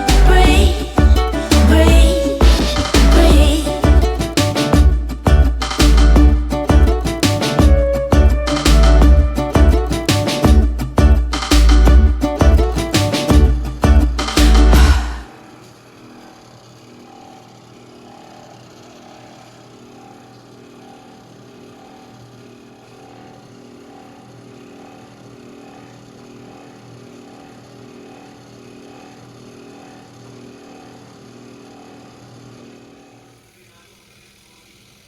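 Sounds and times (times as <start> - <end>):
small motor humming: 14.8 - 35.0.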